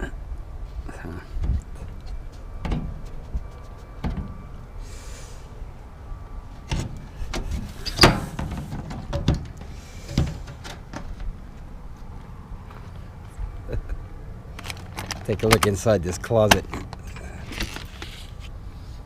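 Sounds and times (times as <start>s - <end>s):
knocks and rattles: 6.7s - 11.3s.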